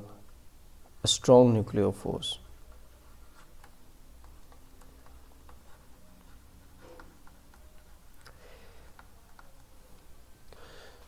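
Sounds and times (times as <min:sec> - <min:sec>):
writing on a board: 0:02.6 - 0:08.1.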